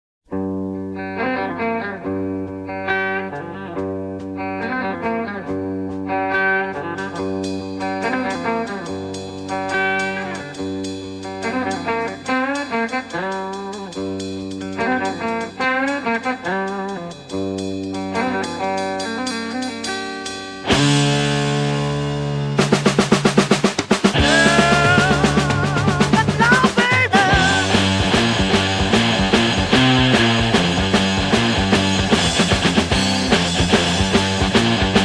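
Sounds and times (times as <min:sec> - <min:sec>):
bass: 0:00.3 - 0:12.2, 0:13.8 - 0:15.4, 0:20.7 - 0:35.0
electric guitar lead line: 0:00.3 - 0:35.0
cymbals ticking: 0:04.6 - 0:35.0.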